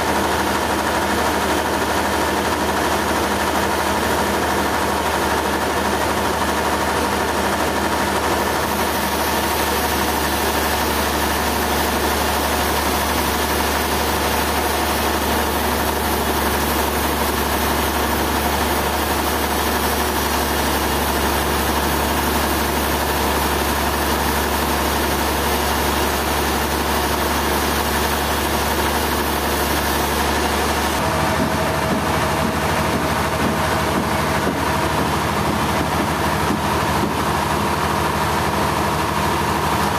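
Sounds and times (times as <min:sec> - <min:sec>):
machinery engine running: 0:00.0 - 0:39.9.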